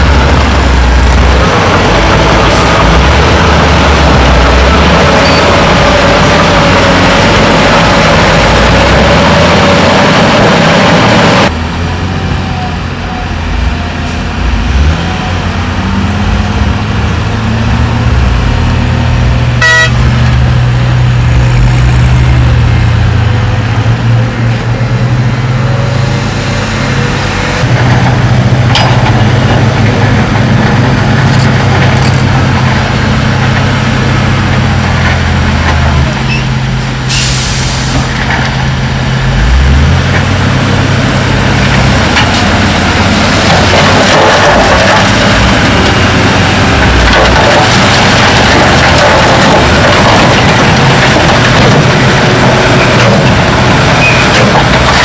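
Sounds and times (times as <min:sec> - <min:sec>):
heavy diesel machinery running: 0:00.0 - 0:55.0
short horn toot: 0:19.6 - 0:20.1.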